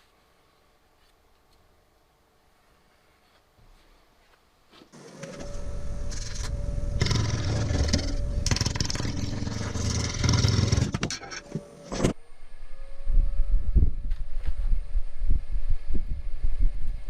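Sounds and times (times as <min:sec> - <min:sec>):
gouge scraping spinning wood: 0:05.0 - 0:11.9
lathe motor whining: 0:05.0 - 0:12.1.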